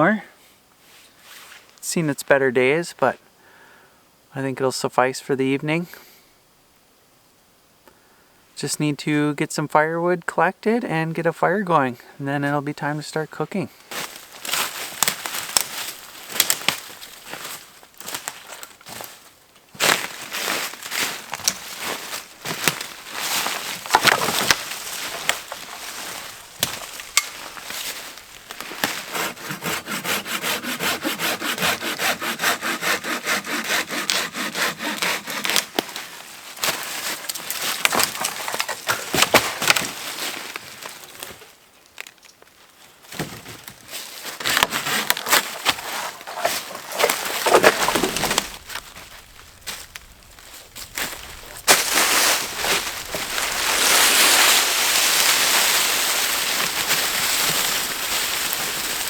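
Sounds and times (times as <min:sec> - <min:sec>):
hand saw cutting wood: 0:22.4 - 0:36.1, 0:44.4 - 0:48.7, 0:51.0 - 0:59.0.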